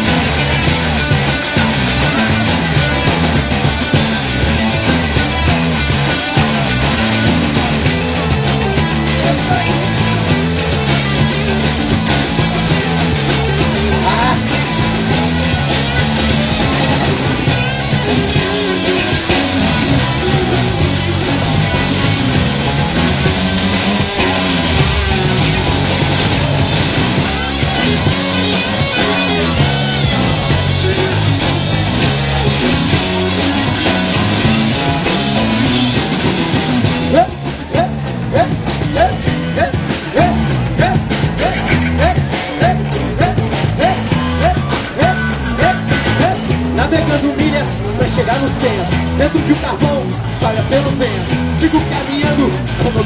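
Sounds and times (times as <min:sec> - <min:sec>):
bass: 0:00.0 - 0:53.0
drum kit beat: 0:00.0 - 0:53.0
guitar: 0:00.0 - 0:53.0
live rock band playing: 0:00.0 - 0:53.0
short rising note: 0:22.5 - 0:27.6.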